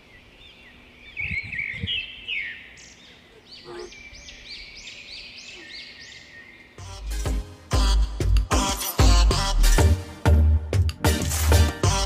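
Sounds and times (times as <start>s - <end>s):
birds chirping: 0.0s - 6.9s.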